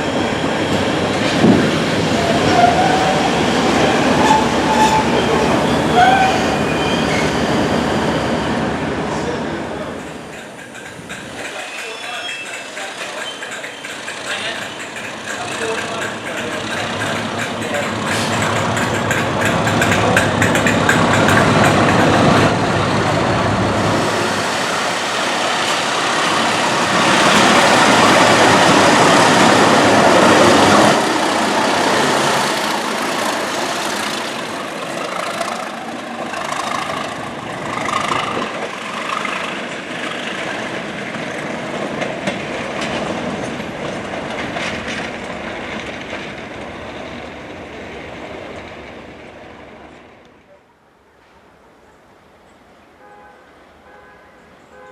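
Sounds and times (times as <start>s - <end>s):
train engine and wheel rumble: 0.0s - 54.9s
wheel clicks over rail joints: 10.3s - 22.3s.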